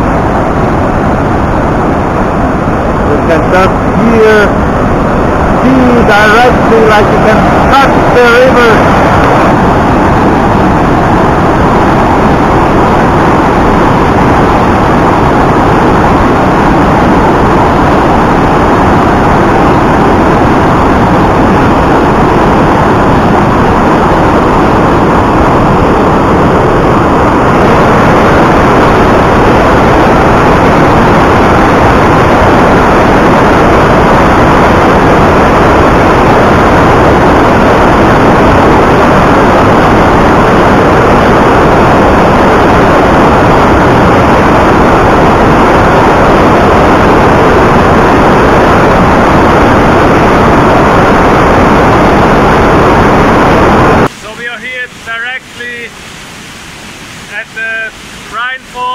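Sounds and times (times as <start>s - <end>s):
waterfall rushing over rocks: 0.0s - 16.4s.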